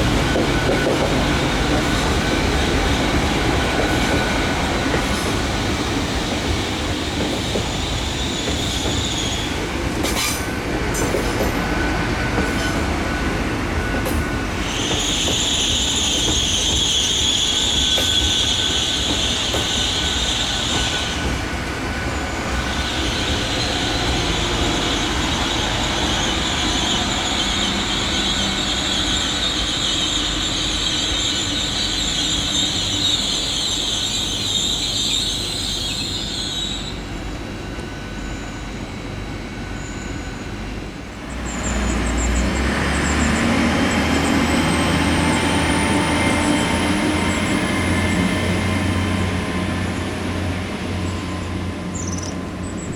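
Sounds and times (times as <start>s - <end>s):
train rumble: 0.0s - 52.9s
train wheel squeal: 0.0s - 52.9s.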